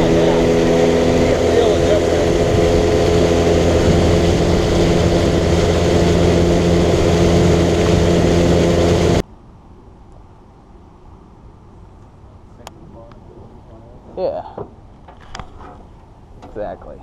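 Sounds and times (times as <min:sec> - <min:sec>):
outboard motor running: 0:00.0 - 0:09.2.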